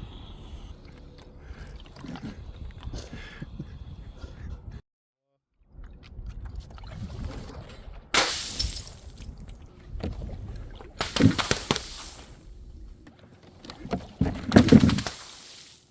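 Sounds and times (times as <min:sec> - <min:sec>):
glass shattering: 0:08.2 - 0:09.2
glass pieces tinkling: 0:08.4 - 0:09.2.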